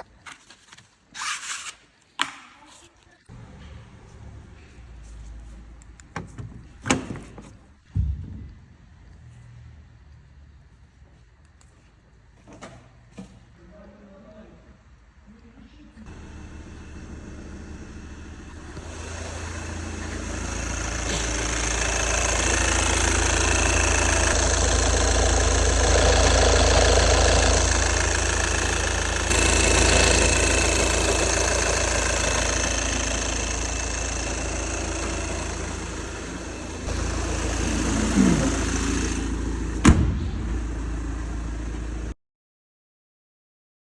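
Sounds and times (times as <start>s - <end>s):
car engine rumbling: 16.1s - 42.1s.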